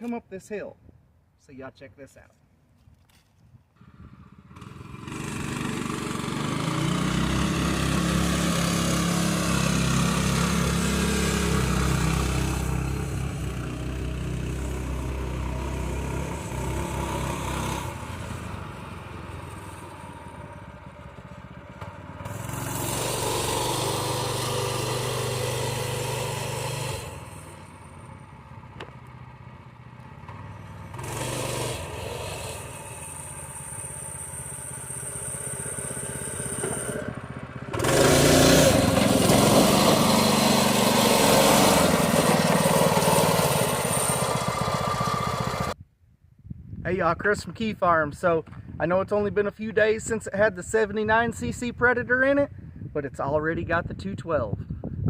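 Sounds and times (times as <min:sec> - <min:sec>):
small engine driving uphill: 0:03.0 - 0:45.8.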